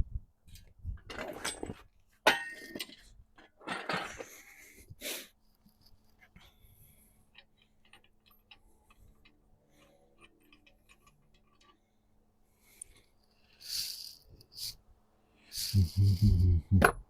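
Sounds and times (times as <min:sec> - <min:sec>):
tools clicking on engine parts: 0:07.3 - 0:11.9
hissing scrapes: 0:13.6 - 0:14.8.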